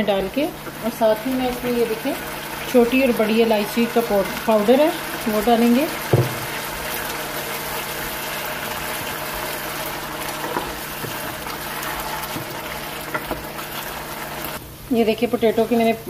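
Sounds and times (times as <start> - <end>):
wooden spatula stirring: 0.0 - 14.5
potatoes sizzling in a pan: 0.0 - 16.0.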